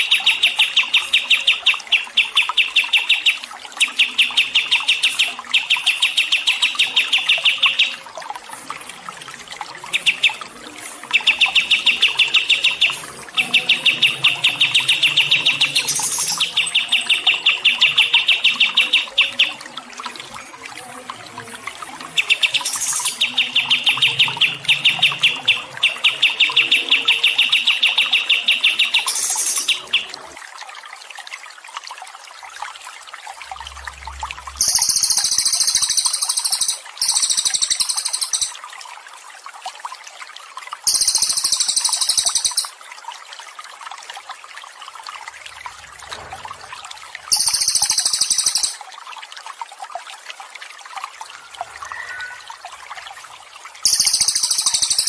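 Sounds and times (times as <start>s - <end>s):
water trickling: 0.0s - 55.0s
bird trilling: 34.6s - 38.6s, 40.9s - 42.7s, 47.3s - 48.8s, 51.6s - 52.6s, 53.9s - 55.0s.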